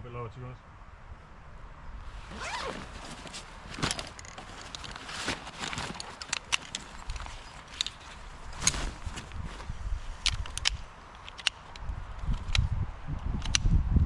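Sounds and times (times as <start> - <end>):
footsteps crunching through twigs: 2.1 - 10.2.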